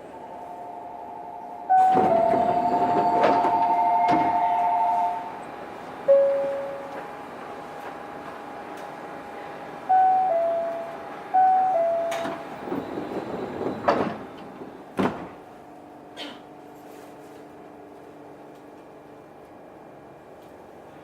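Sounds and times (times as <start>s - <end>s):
hum of stopped train car: 0.0s - 21.0s
sliding doors shutting with thuds: 1.8s - 5.1s, 12.1s - 15.4s.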